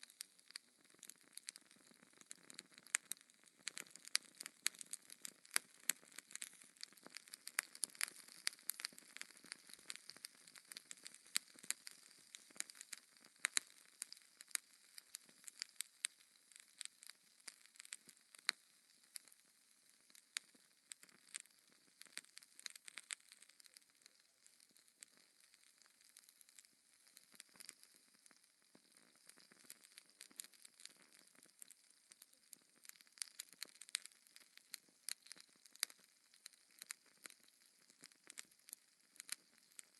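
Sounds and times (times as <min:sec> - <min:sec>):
fire crackling in a fireplace: 0:00.0 - 0:39.9.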